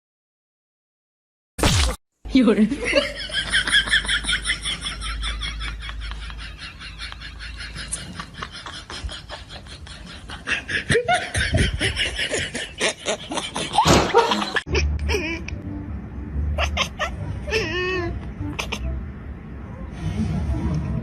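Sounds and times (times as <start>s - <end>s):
person laughing: 2.7s - 15.6s, 16.6s - 18.9s.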